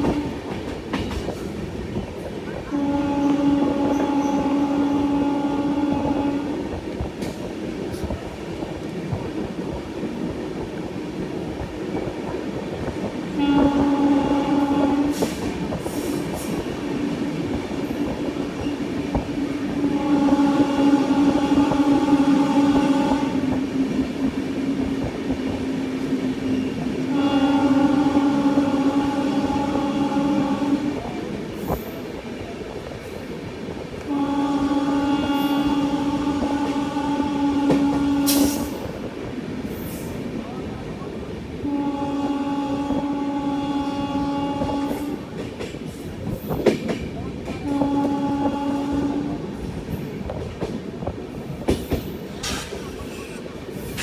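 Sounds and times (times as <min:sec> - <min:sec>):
train horn blasts: 0:00.0 - 0:00.5, 0:02.6 - 0:07.0, 0:13.3 - 0:16.8, 0:17.5 - 0:24.3, 0:26.5 - 0:31.2, 0:34.0 - 0:39.1, 0:41.6 - 0:45.4, 0:47.4 - 0:50.0
train wheels rumbling on track: 0:00.0 - 0:54.0.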